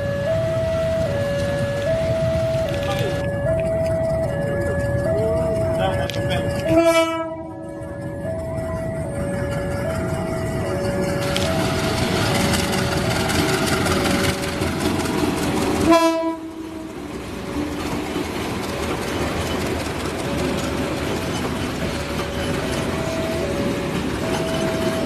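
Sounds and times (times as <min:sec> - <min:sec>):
two-tone crossing warning signal: 0:00.0 - 0:15.0, 0:15.8 - 0:17.7, 0:20.2 - 0:25.0
train wheels rumbling and clacking: 0:00.0 - 0:25.0
train horn blast: 0:06.6 - 0:07.6, 0:15.8 - 0:17.0.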